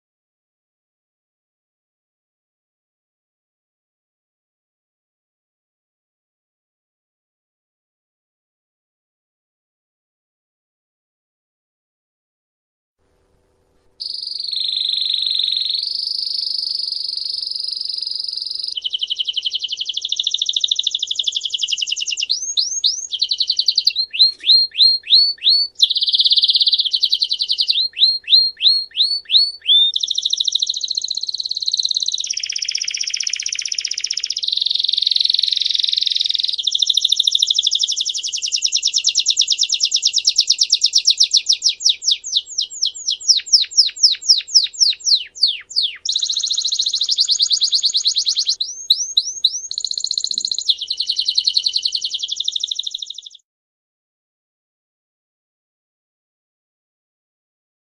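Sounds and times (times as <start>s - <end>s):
canary singing trills: 14.0s - 53.4s
short rising bird chirps: 14.0s - 53.4s.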